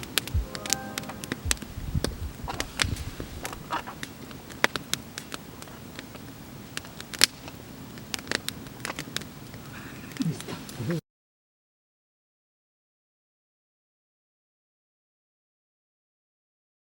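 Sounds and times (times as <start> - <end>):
campfire crackling and popping: 3.5 - 10.3.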